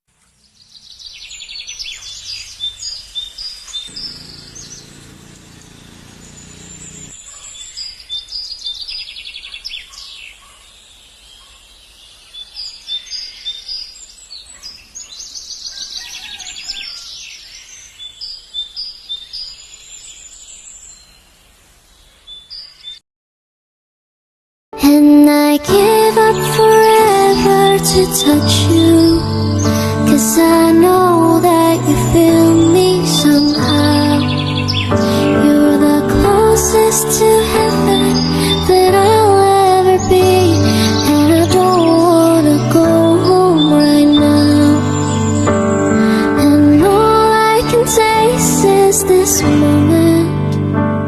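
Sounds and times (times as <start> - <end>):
songbirds chirping and trilling: 0.2 - 23.0, 31.2 - 46.4
faint low hum: 2.4 - 7.2.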